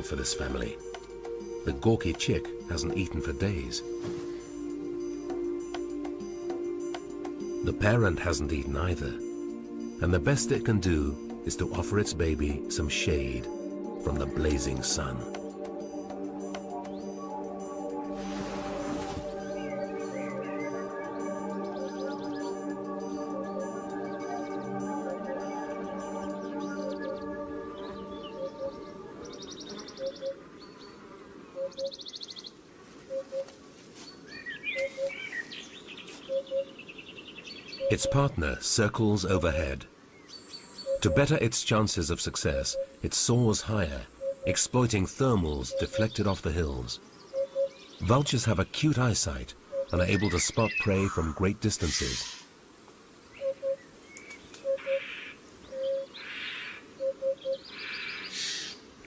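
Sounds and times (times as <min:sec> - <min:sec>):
high bird trills: 0:00.0 - 0:33.5, 0:34.2 - 0:38.4, 0:40.2 - 0:41.4, 0:42.6 - 0:43.1, 0:47.1 - 0:48.1, 0:49.7 - 0:52.6, 0:53.3 - 0:58.9
birds chirping: 0:00.0 - 0:59.0.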